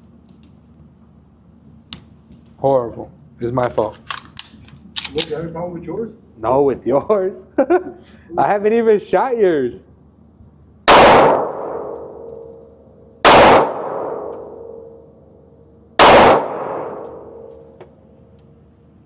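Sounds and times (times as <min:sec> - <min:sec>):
handgun shots with ringing tail: 0:10.9 - 0:12.6, 0:13.2 - 0:15.0, 0:16.0 - 0:17.7.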